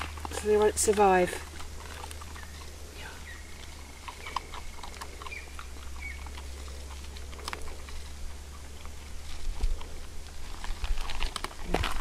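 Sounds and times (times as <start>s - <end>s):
dogs chewing dry food: 0.0s - 12.0s
steady low hum: 0.0s - 12.0s
bird chirps: 2.3s - 6.3s.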